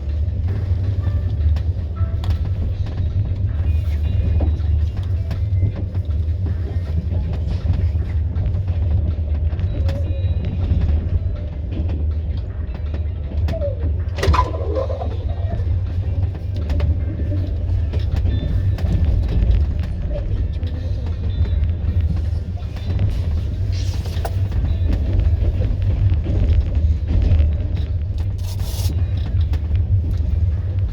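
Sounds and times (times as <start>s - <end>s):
train rumbling on rails: 0.0s - 30.9s.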